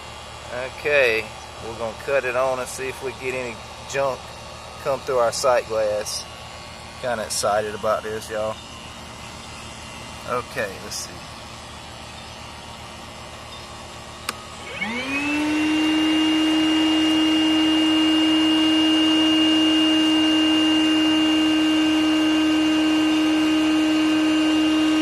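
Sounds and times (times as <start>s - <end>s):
shop vac motor whine: 0.0s - 25.0s
shop vac switch click: 14.2s - 14.5s.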